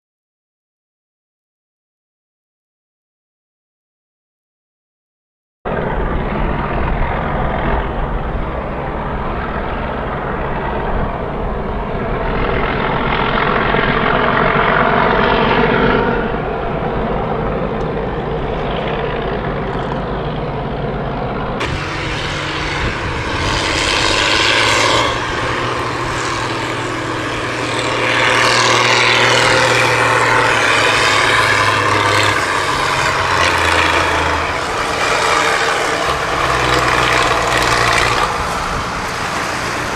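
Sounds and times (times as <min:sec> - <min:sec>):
tractor diesel engines revving: 0:21.6 - 0:39.9.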